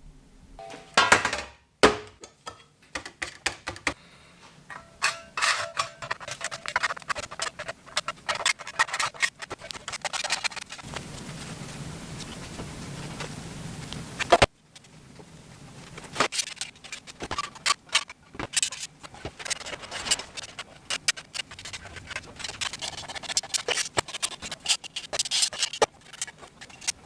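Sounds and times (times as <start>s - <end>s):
steady low hum: 0.0s - 1.0s.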